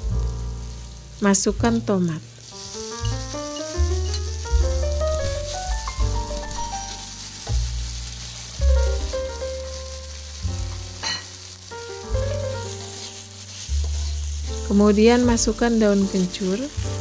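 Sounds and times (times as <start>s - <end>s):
background music with bass: 0.0s - 2.1s, 2.7s - 17.0s
food sizzling in oil: 0.0s - 17.0s
metal spatula stirring in wok: 2.4s - 17.0s
metal clink: 11.0s - 11.3s.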